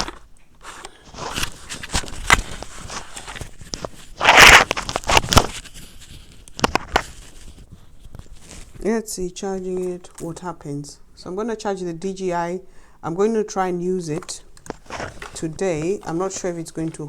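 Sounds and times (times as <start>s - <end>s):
rustling: 0.0s - 10.5s, 13.9s - 17.0s.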